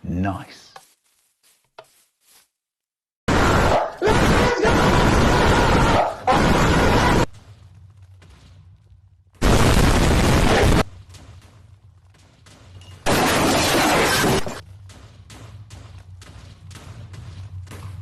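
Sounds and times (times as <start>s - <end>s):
crackling explosion blasts: 9.4s - 14.6s.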